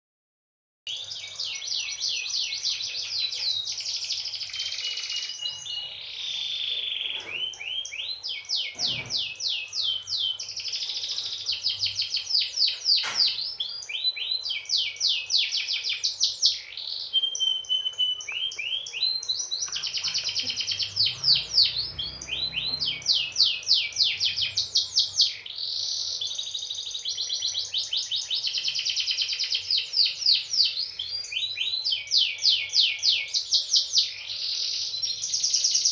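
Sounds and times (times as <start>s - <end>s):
canary singing trills: 0.9s - 35.9s.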